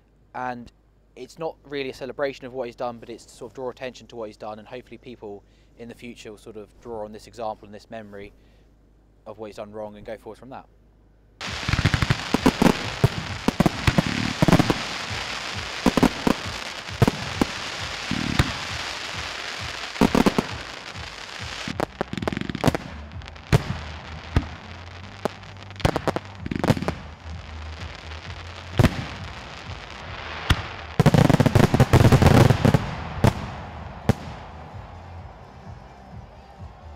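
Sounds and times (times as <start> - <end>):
firework crackle and hiss: 11.4 - 34.5
firework bangs: 11.4 - 35.4.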